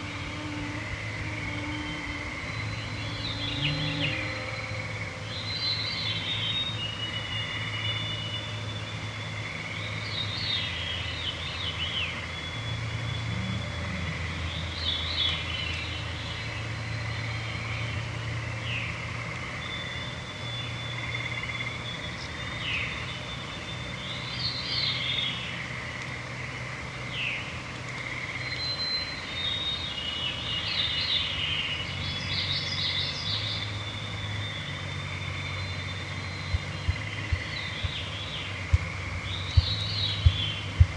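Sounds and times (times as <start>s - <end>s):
frogs and toads trilling: 0.0s - 40.9s
low droning hum: 0.0s - 40.9s
songbirds singing: 0.0s - 40.9s.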